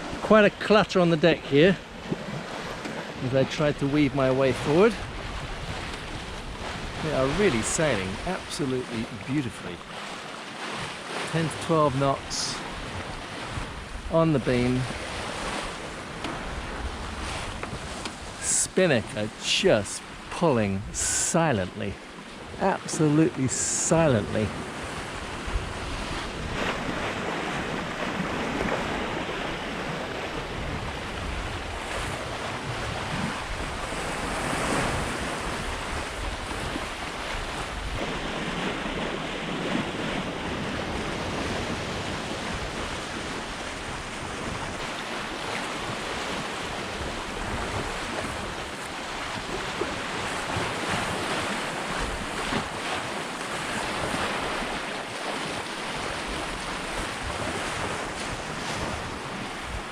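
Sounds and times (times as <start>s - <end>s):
water splashing along a hull: 0.0s - 59.9s
wind noise on microphone: 4.9s - 8.3s, 12.2s - 18.4s, 24.1s - 59.9s.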